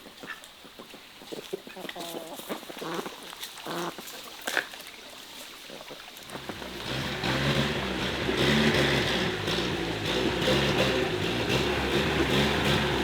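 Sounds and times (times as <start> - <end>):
engine running: 6.3 - 13.0.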